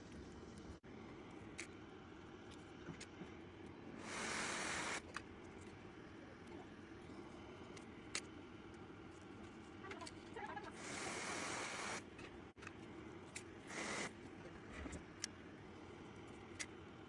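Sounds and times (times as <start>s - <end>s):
short hiss: 4.0s - 5.0s, 13.7s - 14.1s.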